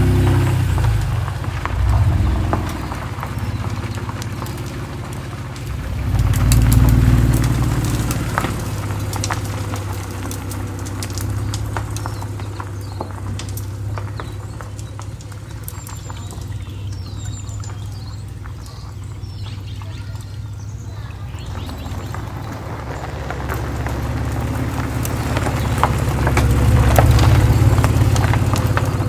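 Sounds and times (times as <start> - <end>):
car engine running: 0.0 - 29.0
sharp ticks and crackles: 0.0 - 29.0.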